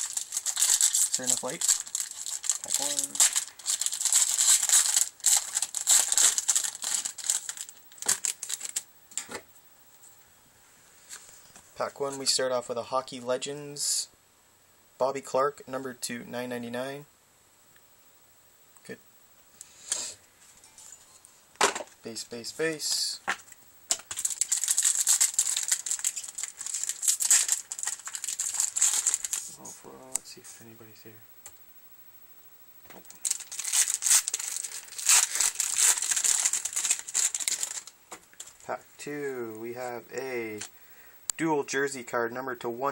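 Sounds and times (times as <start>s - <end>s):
wrapper tearing and crinkling: 0.0s - 8.9s, 23.9s - 29.6s, 33.1s - 38.6s.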